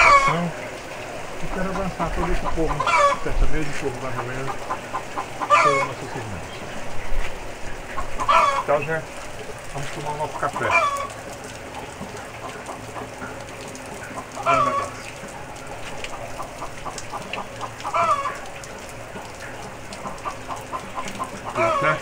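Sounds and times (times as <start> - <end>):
loud chicken call: 0.0 - 0.4, 2.7 - 3.2, 5.4 - 6.0, 8.2 - 8.7, 10.6 - 11.2, 14.4 - 15.0, 17.8 - 18.4, 21.2 - 22.0
chickens clucking: 0.0 - 22.0
steady rain: 0.0 - 22.0.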